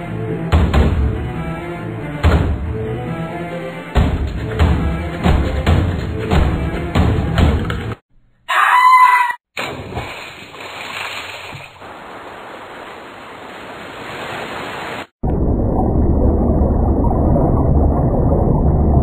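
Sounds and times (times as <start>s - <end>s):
soundtrack music: 0.0s - 7.9s.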